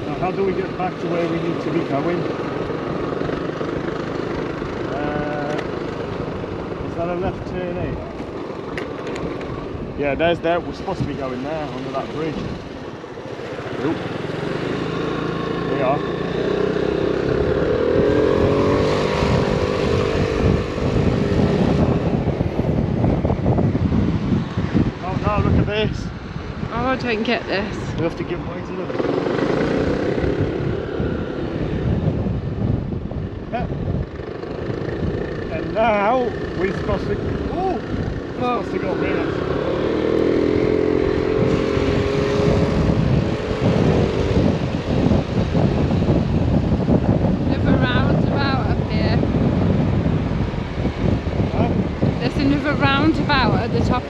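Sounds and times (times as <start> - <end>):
moped engine hum: 0.0 - 54.0
wind buffeting microphone: 0.0 - 54.0
moped engine pulling away: 0.2 - 7.3, 34.3 - 48.2.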